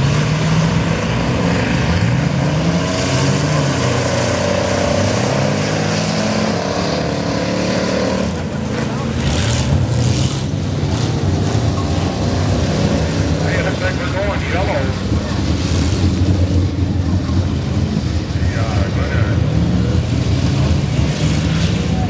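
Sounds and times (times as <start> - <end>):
racing truck engines: 0.0 - 22.0.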